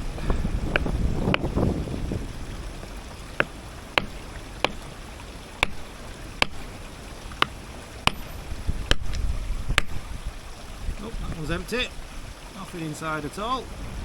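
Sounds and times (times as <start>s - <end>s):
hammer tapping on stone: 3.4s - 5.0s, 5.6s - 6.8s, 7.4s - 9.2s, 9.8s - 10.0s.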